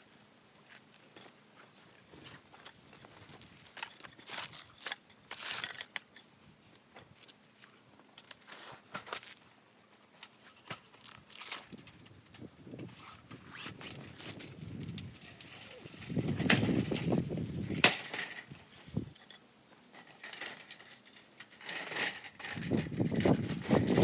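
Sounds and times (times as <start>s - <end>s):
camping gear knocking and clicking: 13.5s - 19.4s.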